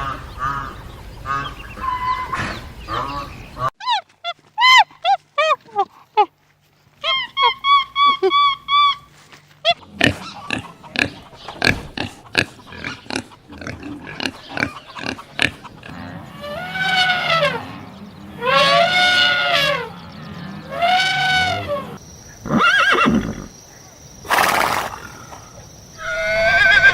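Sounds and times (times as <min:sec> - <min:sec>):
pig squealing: 0:09.7 - 0:23.5, 0:26.0 - 0:26.9
pigs grunting: 0:09.7 - 0:23.5.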